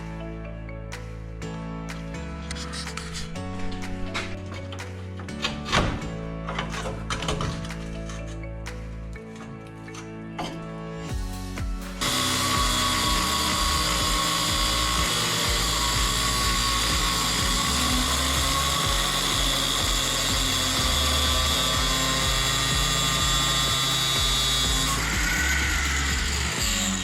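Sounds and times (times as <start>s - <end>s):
background music: 0.0s - 27.0s
power cutting tool whining: 12.0s - 27.0s.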